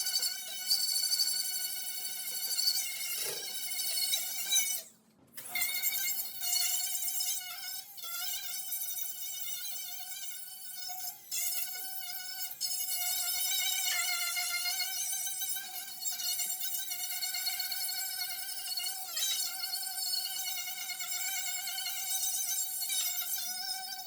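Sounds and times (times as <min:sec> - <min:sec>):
angle grinder on metal: 0:02.9 - 0:04.6.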